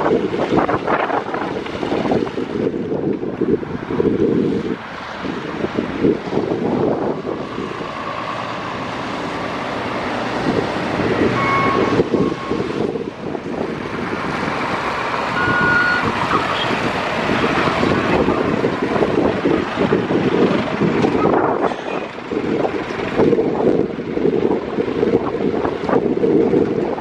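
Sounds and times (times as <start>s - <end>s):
road traffic: 0.0s - 27.0s
wind buffeting microphone: 0.0s - 27.0s
short high-pitched tones: 11.4s - 12.6s, 15.4s - 16.7s.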